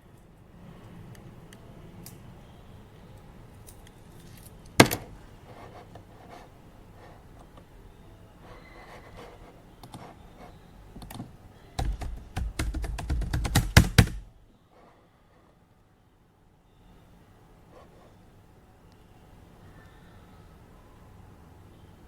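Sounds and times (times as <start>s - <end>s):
typing on computer keyboard: 11.0s - 14.3s.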